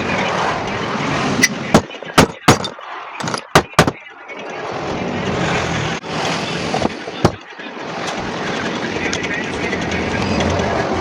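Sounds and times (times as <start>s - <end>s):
sharp knocks: 1.7s - 4.0s.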